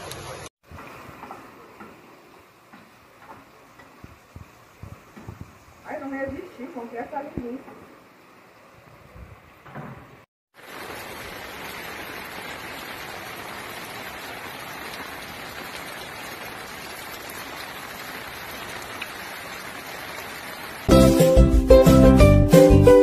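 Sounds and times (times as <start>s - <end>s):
heavy rain falling: 10.5s - 21.0s.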